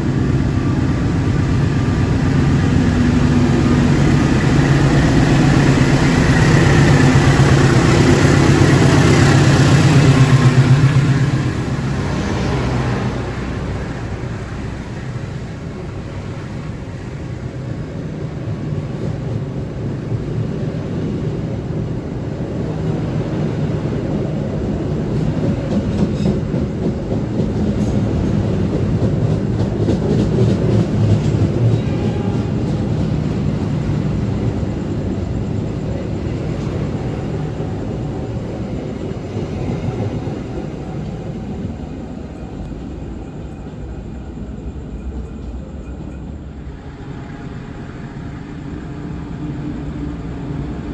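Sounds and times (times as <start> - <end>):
train rumbling: 0.0 - 50.9
wheels clicking over rail joints: 24.0 - 46.6.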